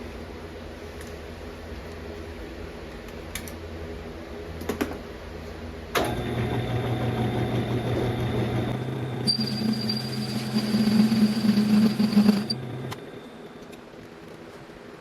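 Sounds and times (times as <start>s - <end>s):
metal lathe humming: 6.0s - 13.6s.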